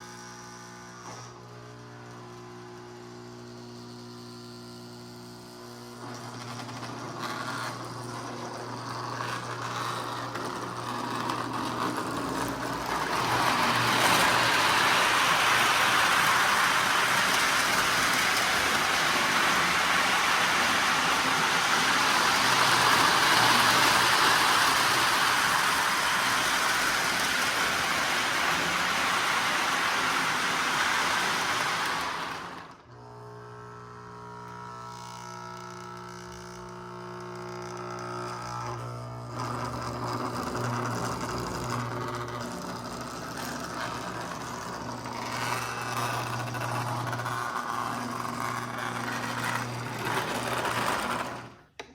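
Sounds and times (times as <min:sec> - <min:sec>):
model train motor running: 0:06.1 - 0:33.1, 0:39.4 - 0:51.9.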